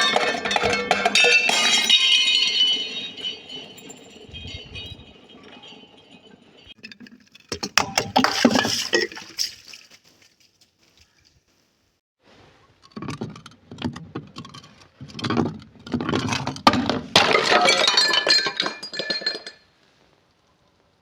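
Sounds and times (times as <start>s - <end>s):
glass crunching and breaking: 0.0s - 8.8s, 17.1s - 19.7s.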